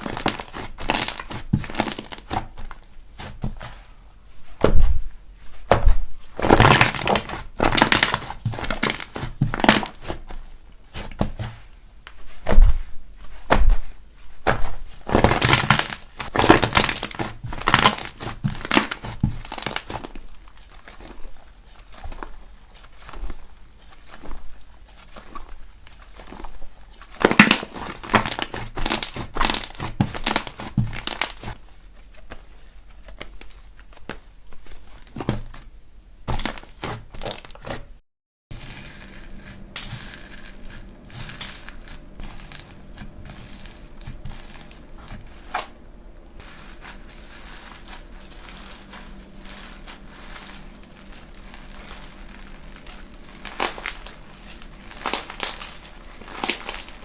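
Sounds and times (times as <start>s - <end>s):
faint steady hum: 38.5s - 57.0s.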